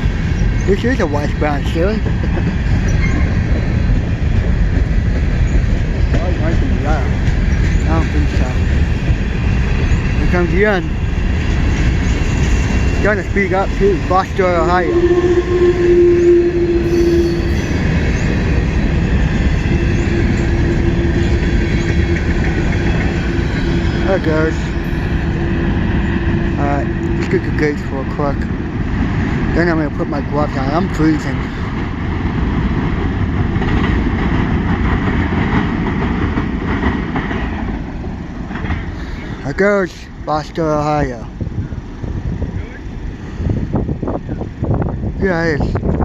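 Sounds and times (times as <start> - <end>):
train wheels rumbling on rails: 0.0 - 46.0
wind buffeting microphone: 0.0 - 46.0
steady whine: 8.5 - 29.0.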